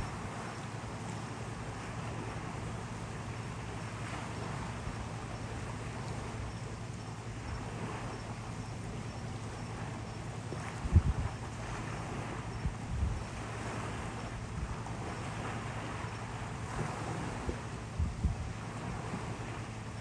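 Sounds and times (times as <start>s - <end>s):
strong wind blowing: 10.8s - 11.4s, 16.7s - 19.3s.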